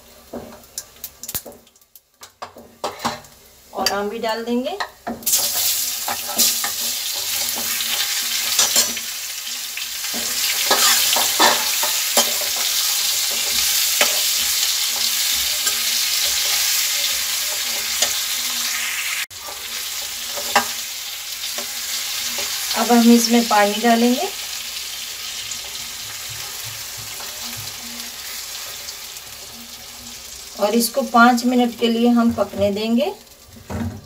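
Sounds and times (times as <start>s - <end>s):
food sizzling in hot oil: 0.0s - 34.0s
ladle clinking and scraping pan: 10.1s - 18.2s.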